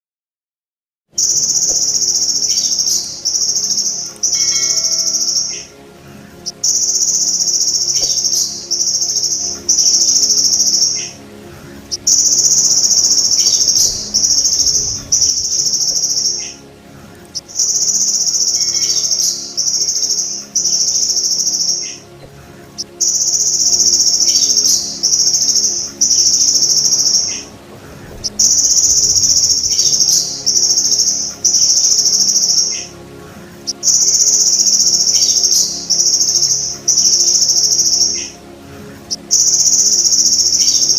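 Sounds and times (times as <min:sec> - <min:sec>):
grasshopper shrill buzzing trill: 0:01.2 - 0:16.7, 0:17.3 - 0:22.1, 0:22.8 - 0:32.9, 0:33.6 - 0:38.3
faint bird chirps: 0:01.2 - 0:32.9.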